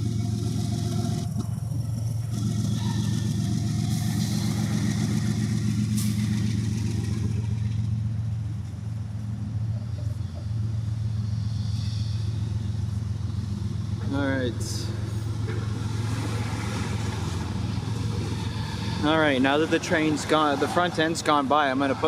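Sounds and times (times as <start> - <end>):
locomotive engine drone: 0.0 - 22.0
train rumbling on rails: 0.0 - 22.0.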